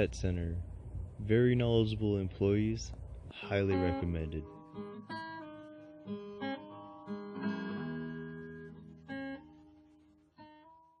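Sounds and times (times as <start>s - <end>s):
acoustic guitar: 3.3s - 10.9s.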